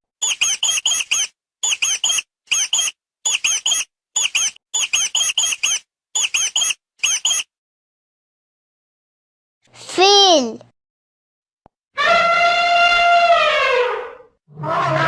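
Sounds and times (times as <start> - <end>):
mouse squeaking: 0.2 - 7.5.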